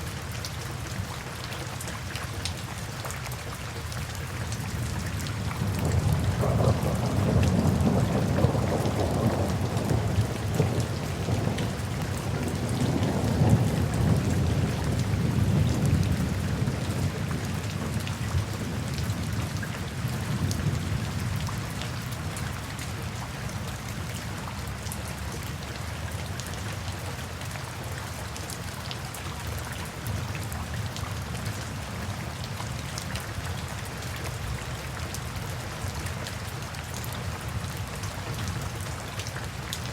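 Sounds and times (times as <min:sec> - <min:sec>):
rain falling: 0:00.0 - 0:39.9
low rumble of thunder: 0:04.8 - 0:22.9.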